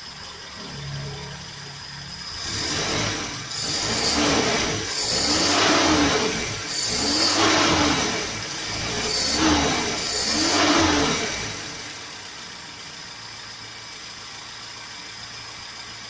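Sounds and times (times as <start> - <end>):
car engine revving: 0.1 - 12.8.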